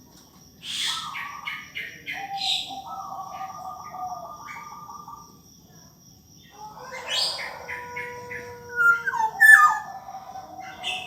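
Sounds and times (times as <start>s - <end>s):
bird singing fluty whistles: 8.8s - 9.9s.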